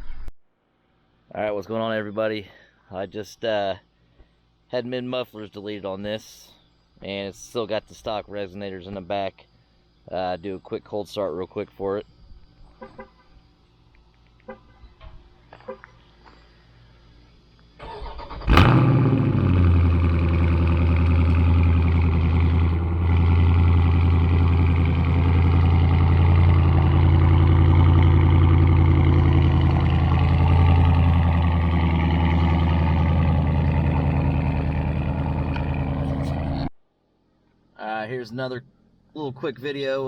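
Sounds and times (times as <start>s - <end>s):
car engine starting and idling: 17.8s - 36.7s
engine cranking: 17.8s - 36.7s.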